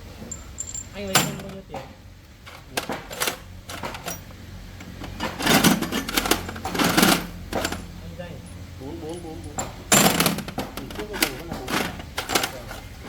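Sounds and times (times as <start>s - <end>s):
metal tools clinking: 0.2s - 1.9s, 2.5s - 4.4s, 5.0s - 13.0s.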